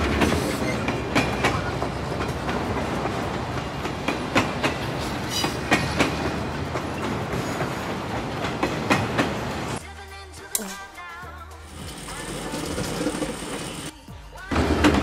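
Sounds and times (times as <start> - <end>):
train rumbling on rails: 0.0 - 9.8, 11.6 - 13.9, 14.5 - 15.0
wheels clacking over rail joints: 0.0 - 9.8, 11.7 - 13.9.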